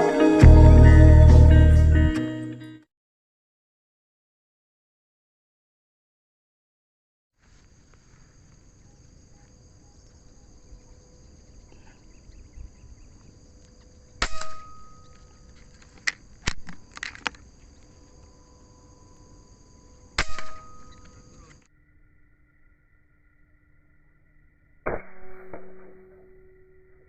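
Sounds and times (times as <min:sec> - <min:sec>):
insects buzzing: 0:07.4 - 0:24.8
air rifle shots: 0:14.2 - 0:15.1, 0:20.2 - 0:21.1.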